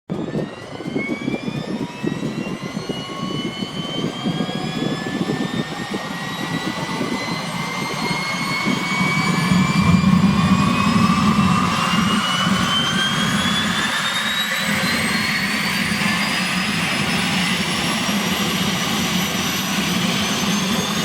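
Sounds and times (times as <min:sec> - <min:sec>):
turbine engine whine rising: 0:00.1 - 0:21.0
rough low rumble: 0:07.8 - 0:13.8.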